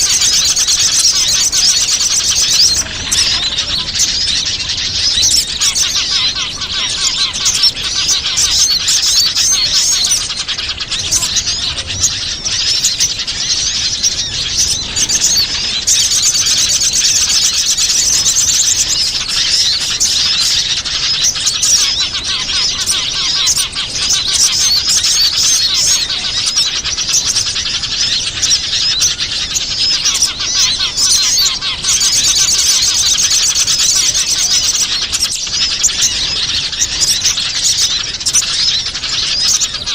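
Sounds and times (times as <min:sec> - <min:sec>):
small birds chirping and twittering: 0:00.0 - 0:39.9.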